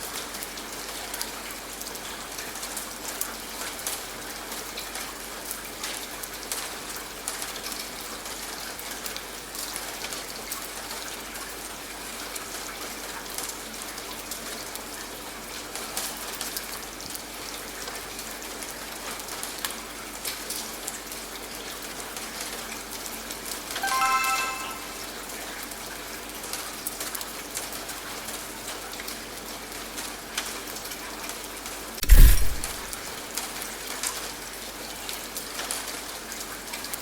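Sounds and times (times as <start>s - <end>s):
steady rain falling: 0.0s - 23.3s, 26.5s - 37.0s
short pitched timer beep: 23.8s - 25.0s, 32.0s - 32.8s.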